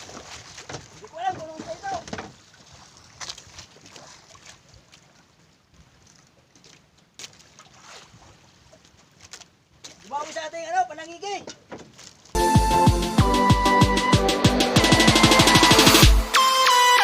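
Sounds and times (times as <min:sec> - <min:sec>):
faint wind: 0:00.0 - 0:12.4
water noise: 0:00.0 - 0:16.8
sharp knocks on boat: 0:00.1 - 0:02.4, 0:11.4 - 0:12.1.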